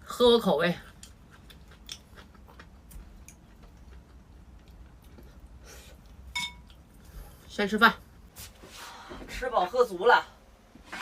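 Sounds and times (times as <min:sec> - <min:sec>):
quiet chewing: 0:00.8 - 0:07.4.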